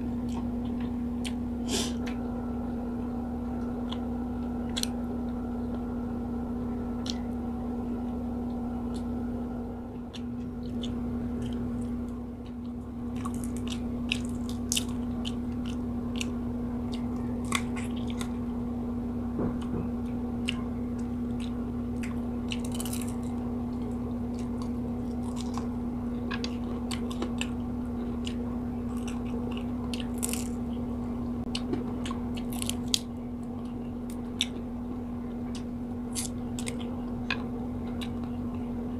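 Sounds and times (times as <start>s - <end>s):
close-up chewing and crunching: 0.0s - 2.2s, 3.5s - 5.8s, 7.0s - 7.4s, 9.9s - 18.6s, 19.5s - 38.9s
steady low hum: 0.0s - 38.9s.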